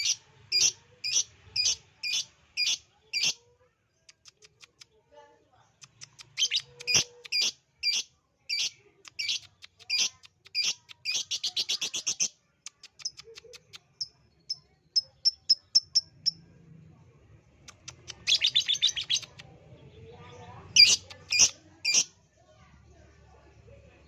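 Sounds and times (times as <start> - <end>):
bird chattering trill: 0.0 - 3.4, 5.9 - 16.4, 17.7 - 19.4, 20.8 - 22.1
lovebird chirping: 0.0 - 3.4, 5.9 - 16.4, 17.7 - 19.4, 20.3 - 22.1.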